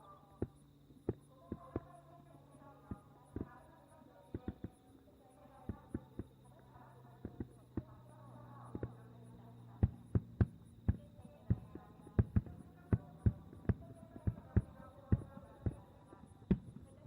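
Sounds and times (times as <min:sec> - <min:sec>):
fireworks booming: 0:08.7 - 0:17.0.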